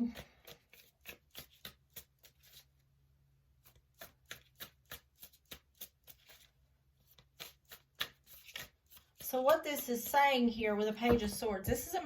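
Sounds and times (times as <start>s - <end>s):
cards being shuffled by hand: 0.0s - 2.8s, 3.6s - 9.6s.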